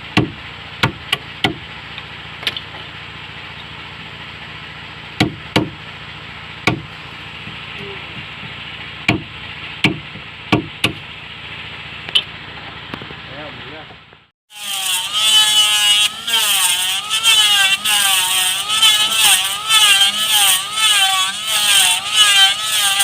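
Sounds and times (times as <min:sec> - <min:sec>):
hammer striking wooden planks: 0:00.2 - 0:01.6, 0:05.2 - 0:05.8, 0:06.6 - 0:06.9, 0:09.1 - 0:11.0.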